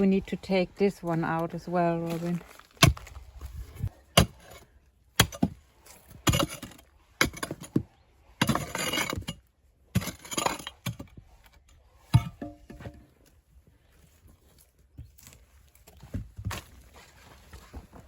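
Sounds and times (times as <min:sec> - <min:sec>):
stone scraping and crumbling: 0:01.4 - 0:11.2
metal tool striking rock: 0:04.2 - 0:04.6, 0:05.2 - 0:05.6, 0:06.2 - 0:07.8, 0:08.4 - 0:11.1, 0:12.1 - 0:13.0.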